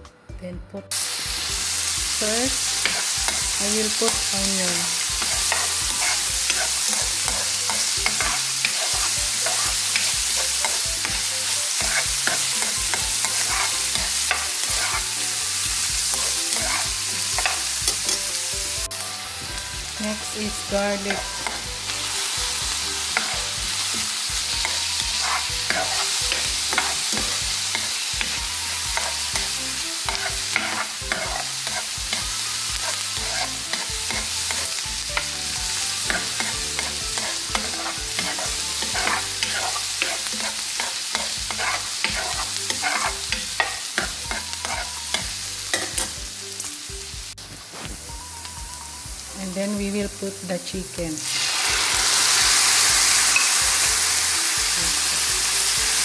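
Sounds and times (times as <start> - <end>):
onion and garlic sizzling in oil: 0.9 - 56.0
wooden spoon scraping pan: 5.2 - 7.5, 11.8 - 15.1, 16.1 - 17.6, 25.2 - 27.8, 32.7 - 34.7, 36.1 - 44.9.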